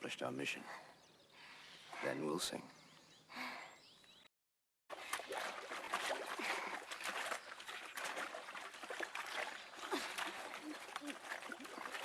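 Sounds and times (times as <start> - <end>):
water clicks and gurgles: 4.9 - 12.0
water trickling and splashing: 4.9 - 12.0.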